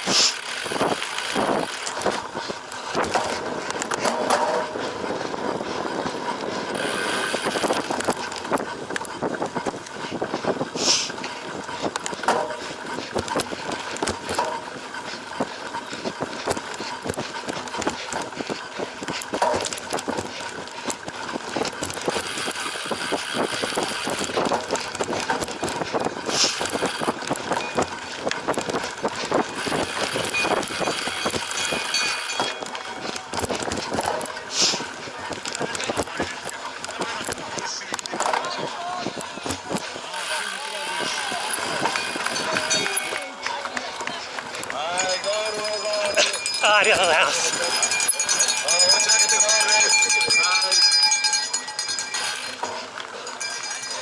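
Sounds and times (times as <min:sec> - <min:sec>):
wind noise: 0:00.0 - 0:36.4
bike rattling and knocking: 0:00.0 - 0:54.0.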